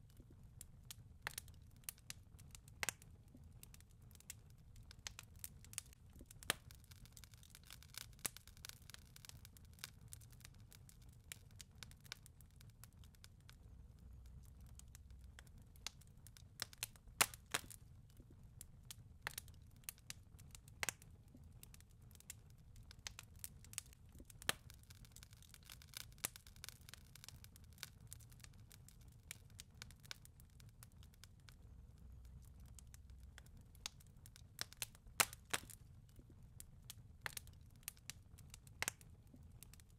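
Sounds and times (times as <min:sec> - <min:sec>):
burning wood crackling and popping: 0:00.0 - 0:39.9
faint low rumble: 0:10.1 - 0:25.3, 0:28.2 - 0:39.9.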